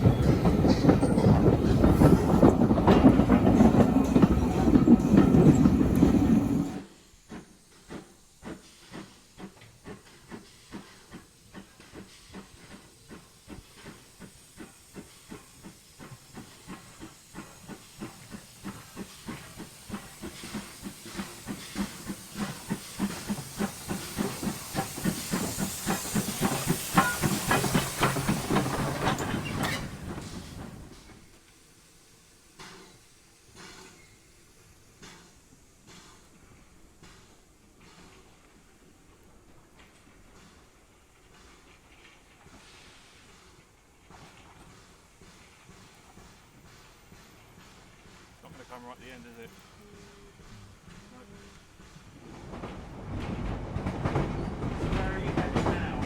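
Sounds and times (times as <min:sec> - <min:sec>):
loud train running noise: 0:00.0 - 0:08.6, 0:12.3 - 0:31.0, 0:48.3 - 0:56.0
steam hissing: 0:00.0 - 0:56.0
steam locomotive chuffing: 0:00.0 - 0:56.0.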